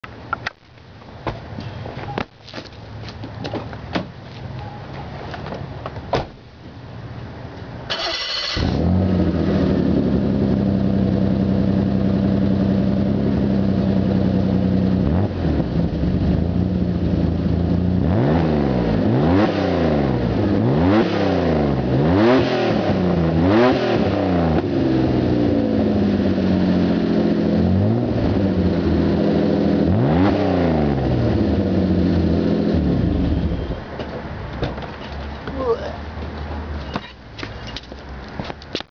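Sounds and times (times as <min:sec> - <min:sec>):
car engine starting: 0:07.8 - 0:34.2
car engine revving: 0:07.9 - 0:33.8.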